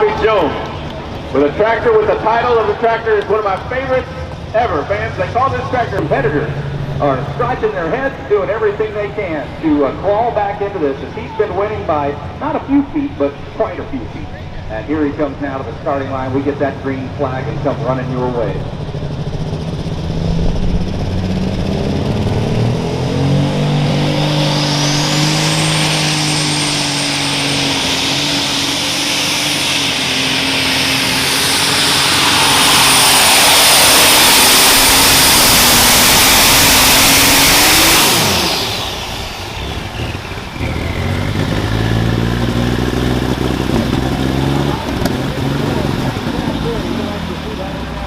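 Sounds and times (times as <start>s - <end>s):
tractor engine at full throttle: 0.0s - 48.0s.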